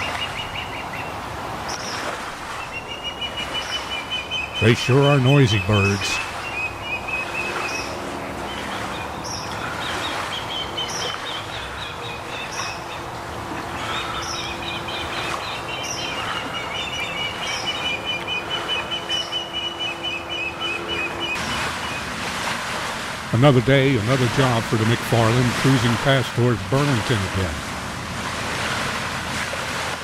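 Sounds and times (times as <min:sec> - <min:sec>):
ospreys whistling calls: 0:00.0 - 0:22.1.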